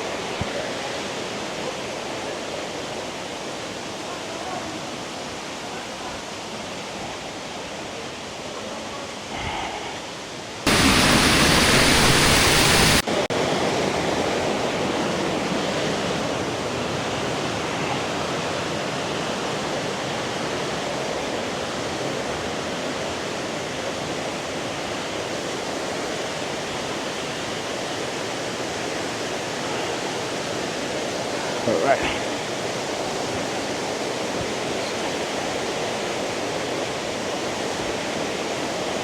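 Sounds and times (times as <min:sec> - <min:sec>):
waterfall rushing: 0:00.0 - 0:39.0
loud rushing noise: 0:10.7 - 0:13.1.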